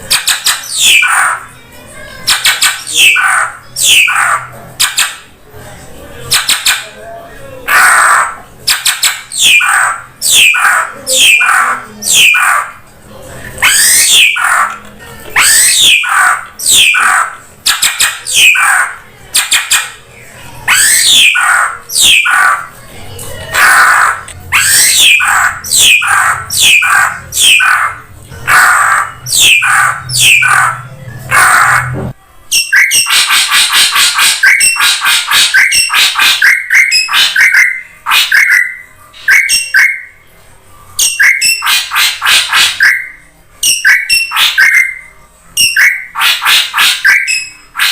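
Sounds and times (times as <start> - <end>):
bird chattering notes: 41.0 - 47.9.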